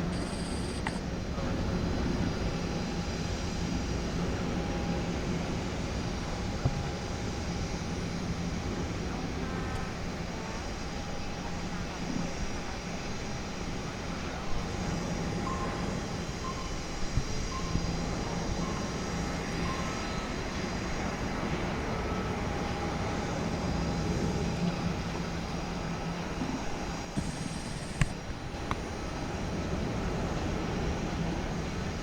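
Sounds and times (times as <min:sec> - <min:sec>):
jet engines rumbling: 0:00.0 - 0:32.0
sharp click: 0:27.2 - 0:28.8.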